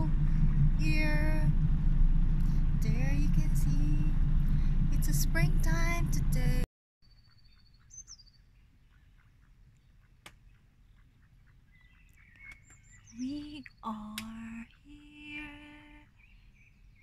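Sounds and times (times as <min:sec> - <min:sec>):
songbird chirps and trill: 0:07.0 - 0:17.0.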